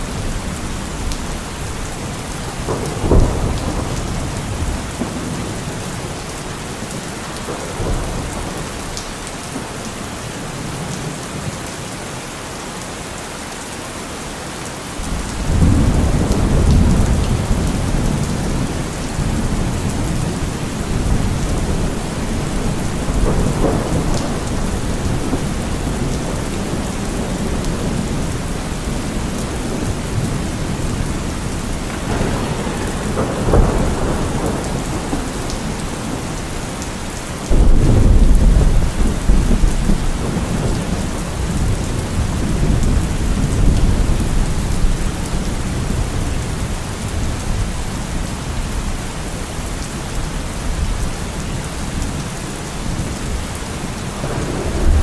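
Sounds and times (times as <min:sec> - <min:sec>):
thunder rumbling: 0:00.0 - 0:09.0, 0:15.0 - 0:51.0, 0:52.9 - 0:55.0
heavy rain: 0:00.0 - 0:55.0.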